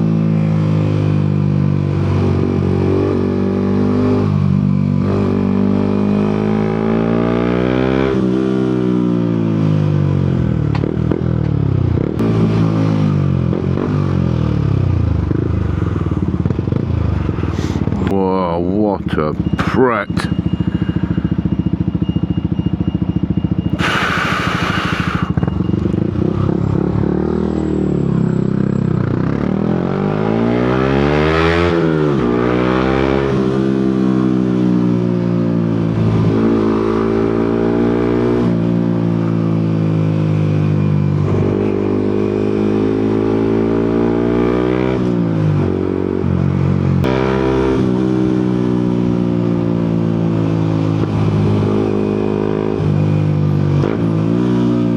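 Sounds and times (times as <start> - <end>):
motorcycle engine revving: 0.0 - 54.9
loud hiss: 23.8 - 25.4.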